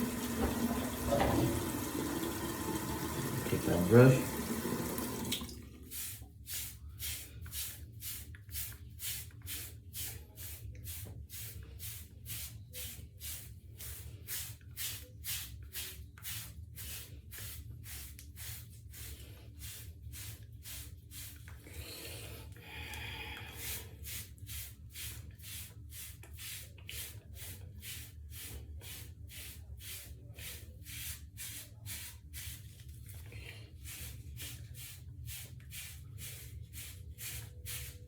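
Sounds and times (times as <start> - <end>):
hairbrush stroking hair: 23.6 - 38.0.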